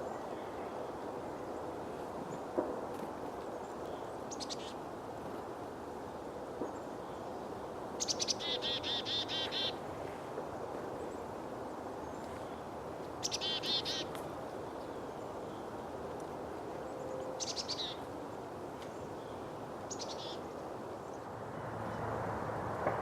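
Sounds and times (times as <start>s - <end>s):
low background hiss: 0.0s - 21.4s
songbirds calling: 3.4s - 4.8s, 6.6s - 10.3s, 10.9s - 22.0s.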